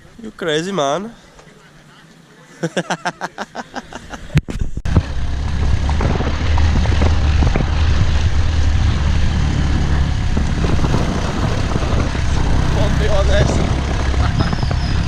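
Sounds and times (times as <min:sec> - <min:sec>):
wind on microphone: 0:04.3 - 0:15.0
motorbike engine rumble: 0:04.5 - 0:15.0.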